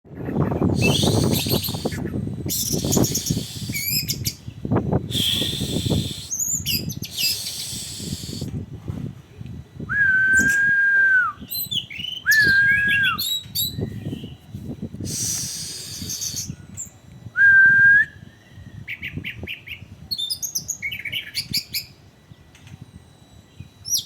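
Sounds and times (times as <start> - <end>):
thrush singing: 0.8 - 4.2.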